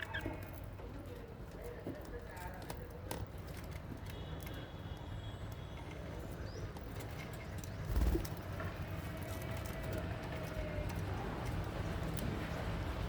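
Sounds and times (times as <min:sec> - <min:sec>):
cage birds chirping: 0:00.0 - 0:08.6.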